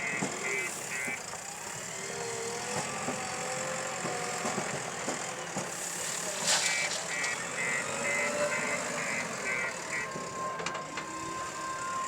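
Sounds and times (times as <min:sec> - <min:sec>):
reversing alarm beeping: 0:00.0 - 0:01.3, 0:06.6 - 0:12.0
engine knocks: 0:00.0 - 0:01.6
diesel engine running: 0:00.0 - 0:12.0.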